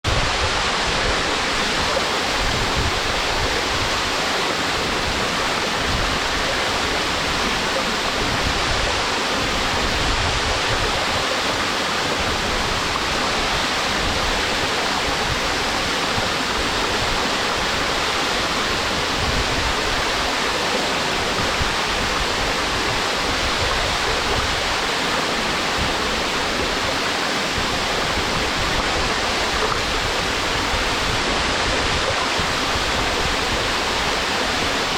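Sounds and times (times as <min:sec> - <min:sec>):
waterfall rushing onto rocks: 0:00.0 - 0:34.9.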